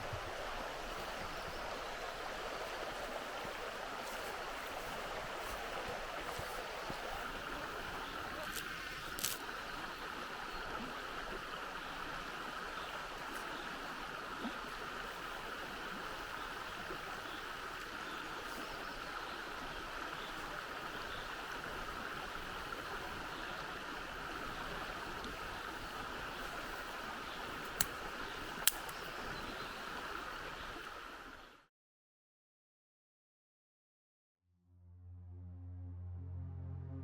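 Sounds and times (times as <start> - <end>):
flowing river water: 0.0 - 31.6
faint ticks: 27.5 - 29.1.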